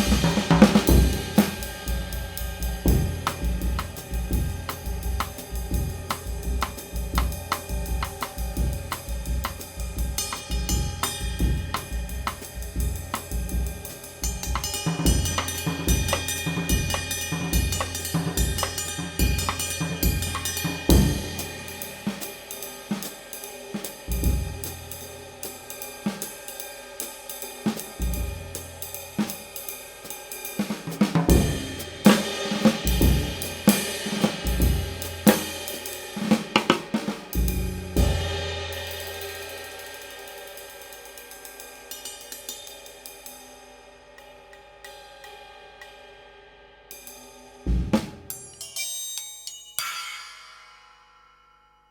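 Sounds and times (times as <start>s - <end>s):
snare drum: 0.0s - 2.1s, 30.6s - 38.0s, 47.7s - 48.3s
bass drum: 0.0s - 21.6s, 31.1s - 35.6s, 36.3s - 38.4s, 47.7s - 48.3s
hi-hat: 0.0s - 36.4s
ride cymbal: 0.0s - 51.9s.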